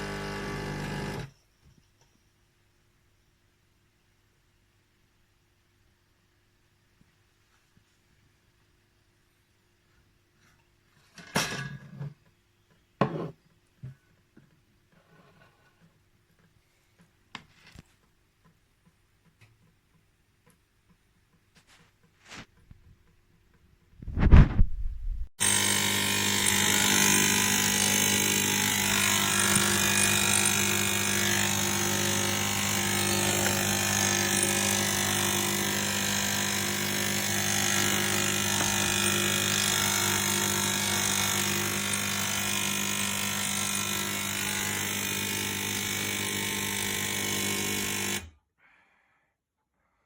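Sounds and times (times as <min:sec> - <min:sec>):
espresso machine buzzing: 0:00.0 - 0:01.3, 0:25.4 - 0:48.2.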